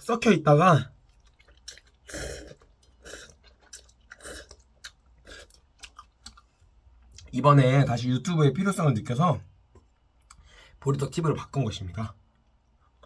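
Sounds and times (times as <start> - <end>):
man chewing noodles: 1.0 - 7.3.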